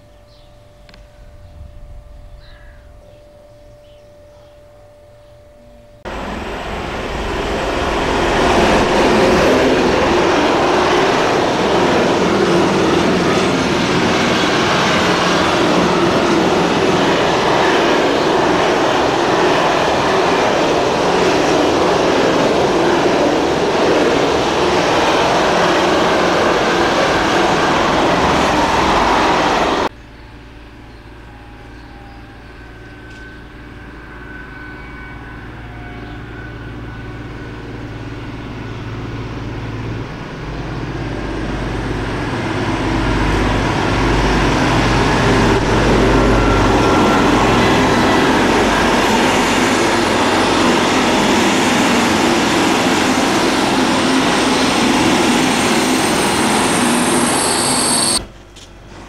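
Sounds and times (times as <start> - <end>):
diesel locomotive engine: 5.5 - 59.0
train wheels rumbling on rail: 6.1 - 59.0
thin high squeal: 56.0 - 58.2.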